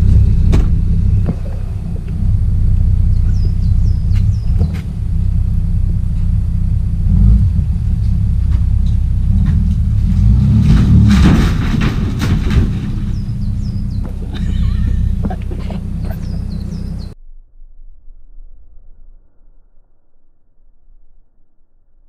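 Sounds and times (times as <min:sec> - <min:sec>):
birds chirping: 0:00.0 - 0:06.9, 0:12.5 - 0:17.2
car engine rumbling: 0:00.0 - 0:17.2
debris breaking and dragging: 0:08.2 - 0:15.7.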